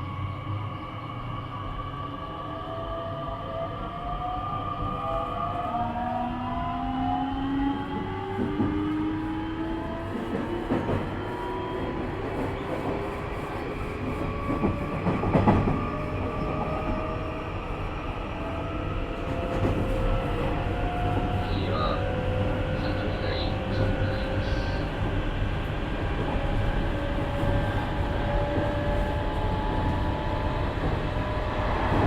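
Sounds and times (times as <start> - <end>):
train wheel and rail rumble: 0.0 - 32.0
train rattle: 9.8 - 17.8, 18.6 - 32.0.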